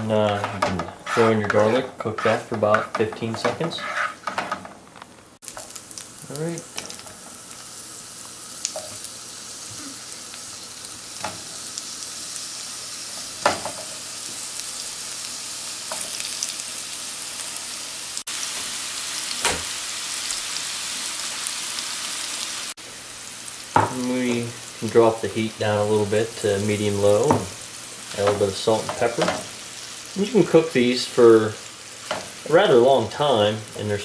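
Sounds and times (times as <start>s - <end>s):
mushrooms sizzling in pan: 0.0s - 34.0s.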